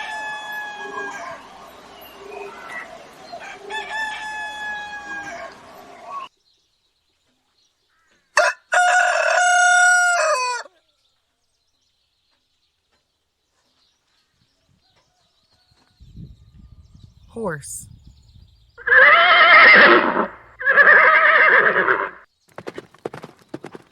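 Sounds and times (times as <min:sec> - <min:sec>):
rooster crowing: 0:00.0 - 0:06.3, 0:08.4 - 0:10.7
outdoor background noise: 0:00.0 - 0:23.9.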